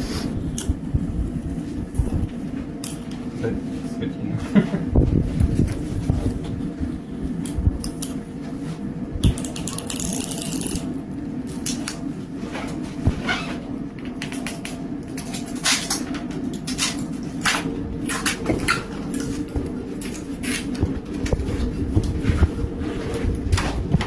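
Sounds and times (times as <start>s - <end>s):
steady machine hum: 0.0s - 24.0s
sharp cracks and crackles: 9.2s - 24.0s.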